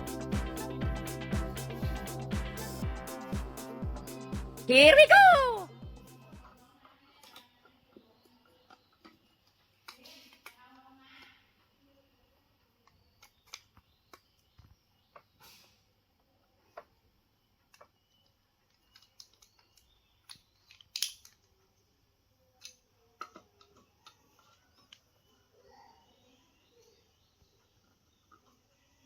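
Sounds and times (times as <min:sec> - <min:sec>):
toy parts clicking: 0:19.0 - 0:21.5.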